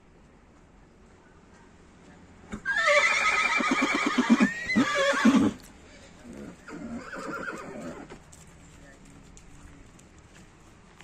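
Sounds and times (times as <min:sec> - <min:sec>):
horse whinnying: 0:02.6 - 0:05.6, 0:06.4 - 0:08.1.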